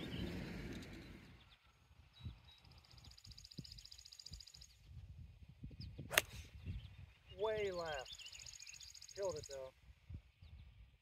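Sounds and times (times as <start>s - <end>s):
bird singing a rapid trill: 0.0s - 5.0s, 6.6s - 9.7s
wind rumbling on microphone: 0.0s - 11.0s.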